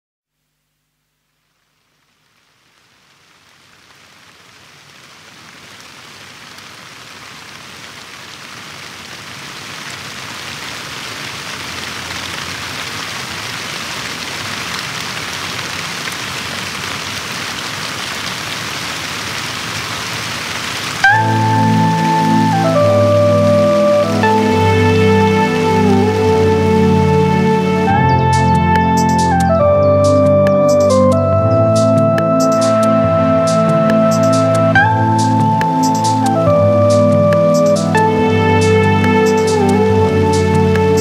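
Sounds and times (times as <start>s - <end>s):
steady rain falling: 0.4s - 41.0s.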